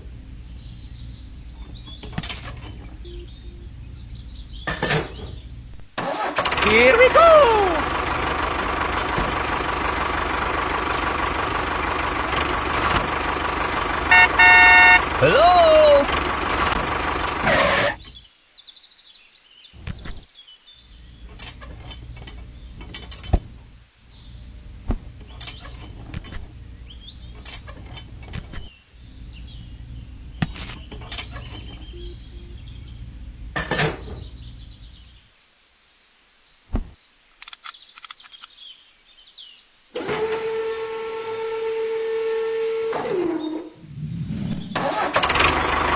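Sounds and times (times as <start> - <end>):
faint bird chirps: 0.0 - 6.0, 23.8 - 33.1
low rumble: 43.7 - 44.8.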